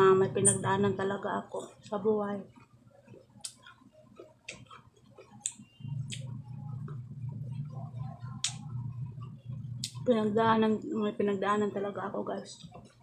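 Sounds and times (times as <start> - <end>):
steady low hum: 0.0 - 13.0
person chewing fruit: 2.5 - 7.0.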